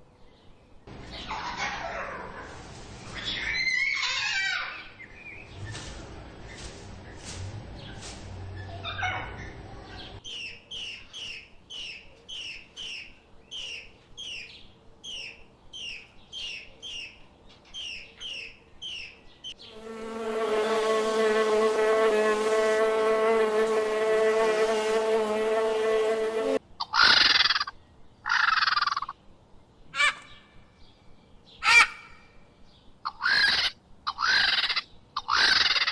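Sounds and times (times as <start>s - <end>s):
insect wings buzzing: 19.7s - 26.6s.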